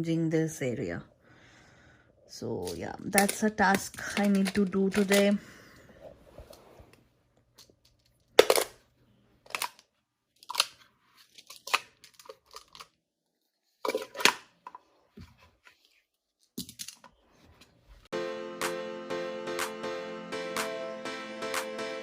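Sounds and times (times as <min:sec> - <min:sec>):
music: 0:18.1 - 0:22.0.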